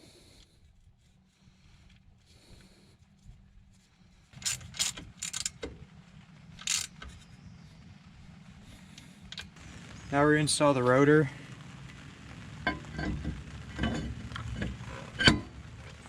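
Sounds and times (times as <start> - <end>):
metallic clicks and clanks of tools: 4.4 - 5.7, 6.6 - 7.1.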